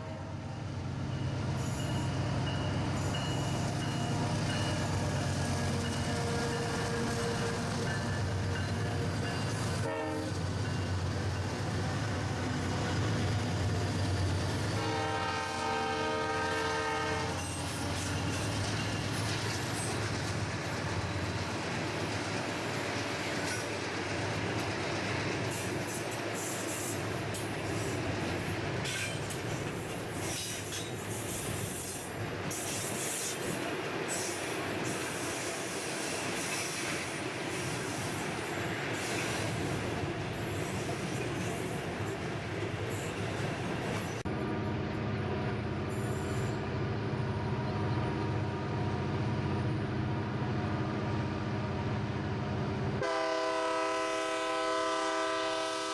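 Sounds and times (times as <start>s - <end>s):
rumble of train wagons: 0.0s - 55.9s
locomotive horn: 4.9s - 7.7s, 9.8s - 10.4s, 14.8s - 17.6s, 53.0s - 55.9s.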